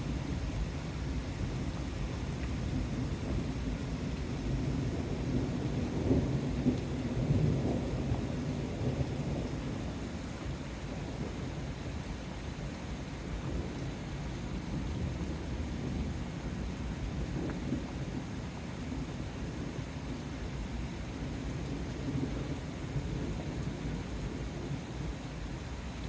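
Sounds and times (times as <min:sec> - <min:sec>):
thunder rumbling: 0:02.6 - 0:10.6.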